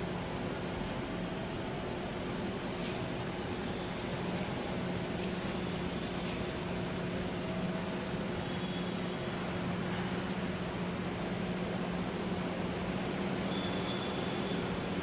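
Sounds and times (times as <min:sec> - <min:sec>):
machinery hum and hiss: 0:00.0 - 0:15.0
faint high whine: 0:05.5 - 0:09.7, 0:13.3 - 0:14.9.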